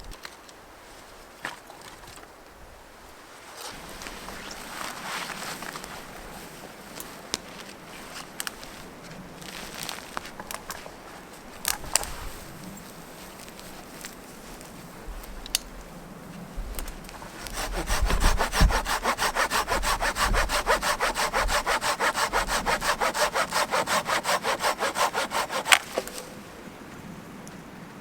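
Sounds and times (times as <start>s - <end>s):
hand saw cutting wood: 17.1s - 26.3s
wood cracking: 17.1s - 26.3s.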